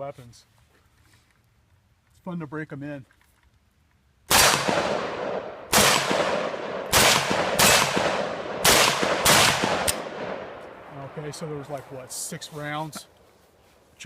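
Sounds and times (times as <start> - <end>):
pistol shots: 4.3 - 10.7.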